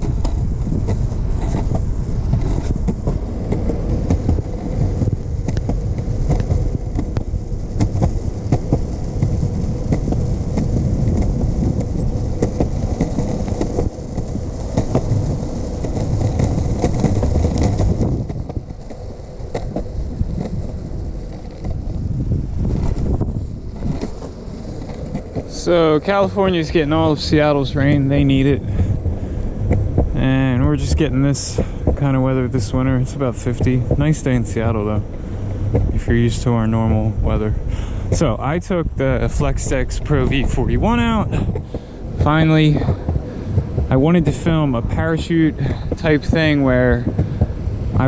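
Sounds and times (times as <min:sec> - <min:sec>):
skateboard wheels rolling on pavement: 0:00.0 - 0:48.0.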